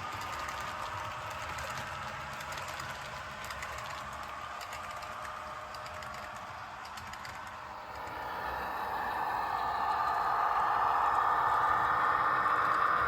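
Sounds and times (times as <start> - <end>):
model train motor whine: 6.0 - 13.0.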